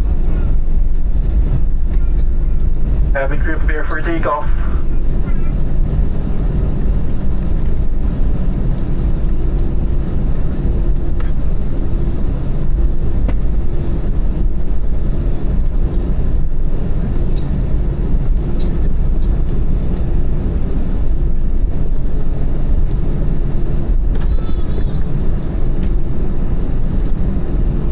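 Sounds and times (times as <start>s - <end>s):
airplane cabin engine rumble: 0.0s - 27.9s
faint steady hum: 2.6s - 7.1s.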